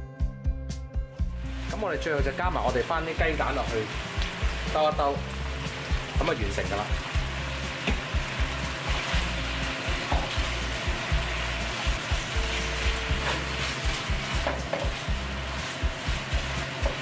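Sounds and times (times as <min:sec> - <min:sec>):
food sizzling in a wok: 0:01.2 - 0:17.0
spatula stirring in a wok: 0:07.0 - 0:17.0.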